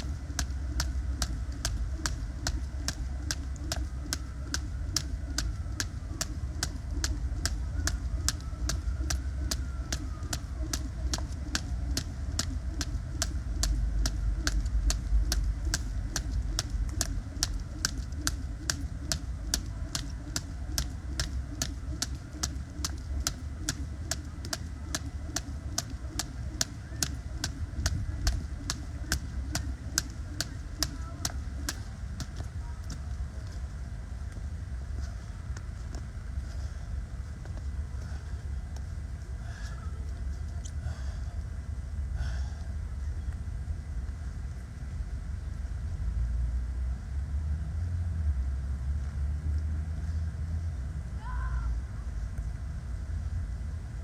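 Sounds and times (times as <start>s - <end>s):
jump rope slapping the ground: 0.0s - 33.2s
low rumble: 0.0s - 39.5s.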